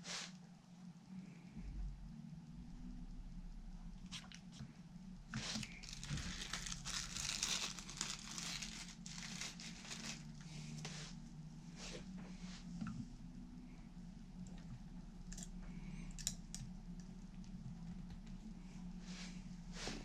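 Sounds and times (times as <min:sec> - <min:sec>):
steady low hum: 0:00.0 - 0:20.0
crinkling: 0:05.3 - 0:11.2.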